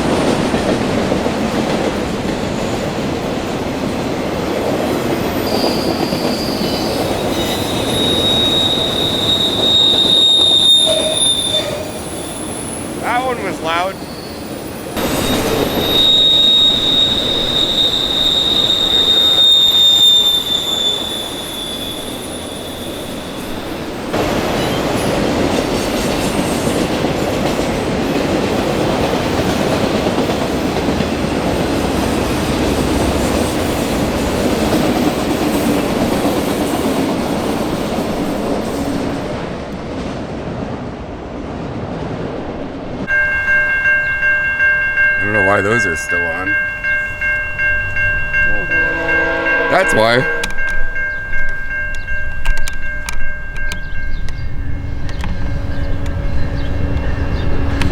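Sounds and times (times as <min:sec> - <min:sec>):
train cars rumbling and clattering: 0:00.0 - 0:57.9
train wheels squealing: 0:01.9 - 0:28.3, 0:43.1 - 0:57.9
level-crossing bells ringing: 0:06.2 - 0:24.2, 0:43.1 - 0:56.7.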